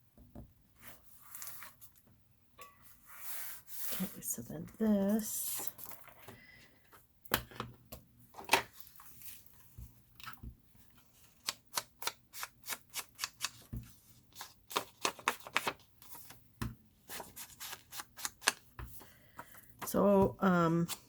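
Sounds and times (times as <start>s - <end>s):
paper and card rustling: 11.0s - 16.4s, 17.1s - 21.0s.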